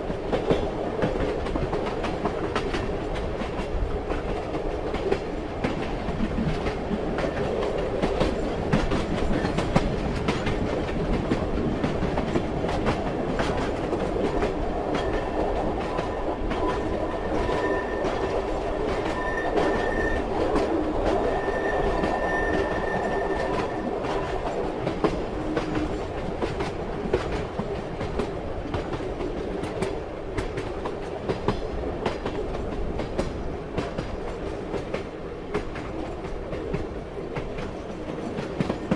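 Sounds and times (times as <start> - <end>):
train rumbling on rails: 0.0 - 38.9
wheels clicking over rail joints: 0.0 - 38.9
high wheel squeal: 16.6 - 20.4, 21.2 - 23.8.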